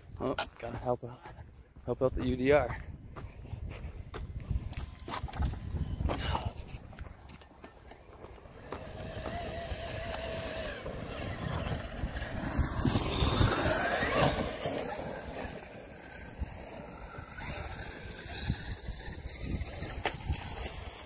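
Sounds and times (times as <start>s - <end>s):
electric motor whining: 8.5s - 21.0s.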